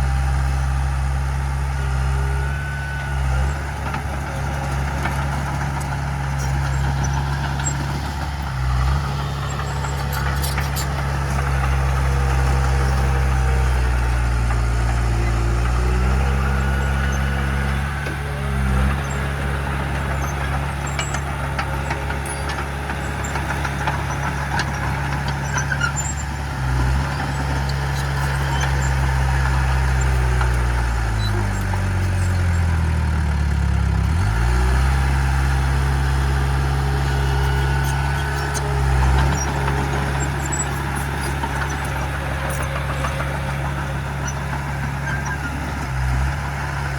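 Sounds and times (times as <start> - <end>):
heavy diesel engine working: 0.0 - 46.9.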